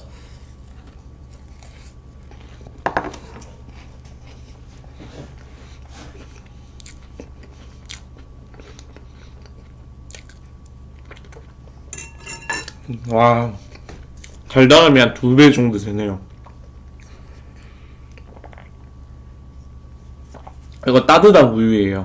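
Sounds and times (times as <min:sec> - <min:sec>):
chewing crunchy cake: 0:00.1 - 0:02.8, 0:05.4 - 0:11.9, 0:16.2 - 0:20.8.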